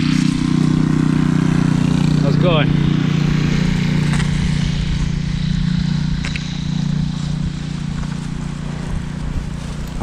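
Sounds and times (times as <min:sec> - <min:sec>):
bicycle riding through snow: 0:00.0 - 0:10.0
wind on microphone: 0:02.7 - 0:10.0.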